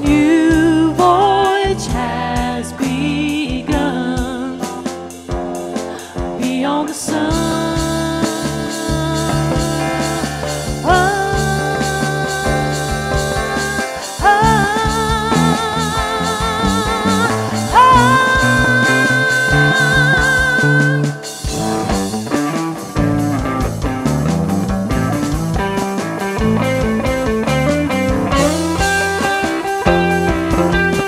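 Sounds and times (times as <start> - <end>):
guitar melody with vibrato: 0.0 - 31.0
plucked guitar notes: 7.3 - 31.0.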